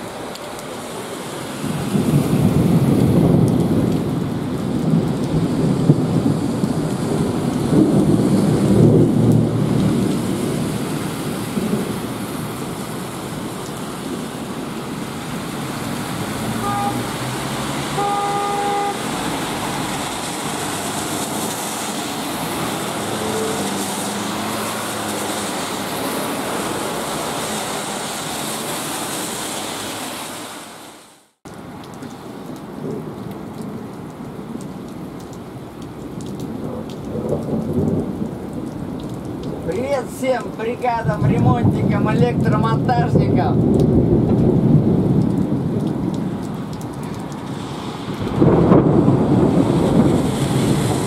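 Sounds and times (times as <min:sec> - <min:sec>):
heavy rain on wet street: 0:00.0 - 0:51.0
car horn honking: 0:16.5 - 0:19.2.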